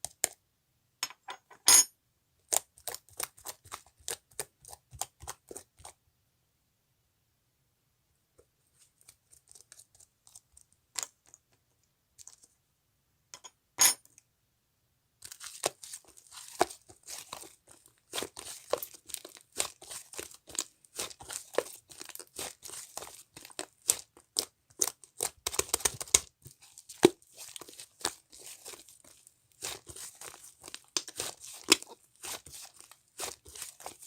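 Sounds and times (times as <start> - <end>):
slime crackling and popping: 15.2 - 34.0.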